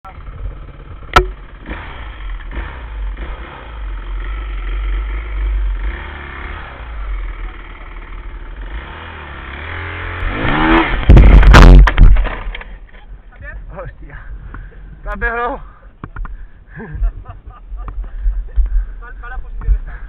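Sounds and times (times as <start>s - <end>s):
dirt bike engine revving: 0.1s - 12.6s.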